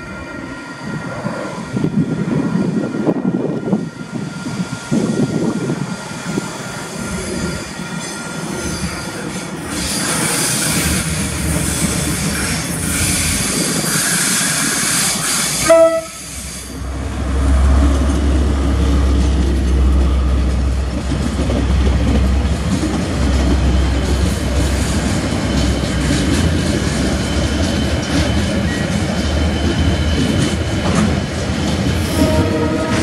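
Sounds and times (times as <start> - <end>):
diesel locomotive engine running: 0.8 - 33.0
train horn blast: 15.6 - 16.5, 32.1 - 33.0.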